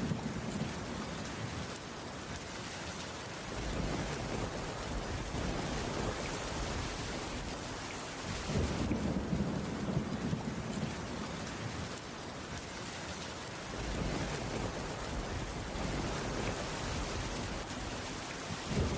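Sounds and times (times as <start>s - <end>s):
rain pattering on a wooden roof: 0.0s - 18.9s
distant thunder rumbling: 3.5s - 12.0s, 13.6s - 18.9s.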